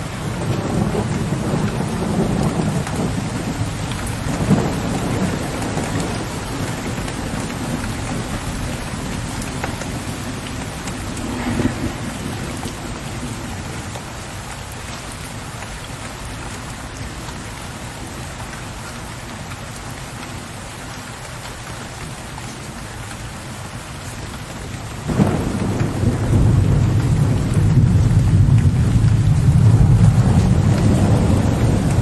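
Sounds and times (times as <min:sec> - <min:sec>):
rain pattering: 0:00.0 - 0:32.0
deep roll of thunder: 0:00.2 - 0:13.5, 0:25.1 - 0:32.0.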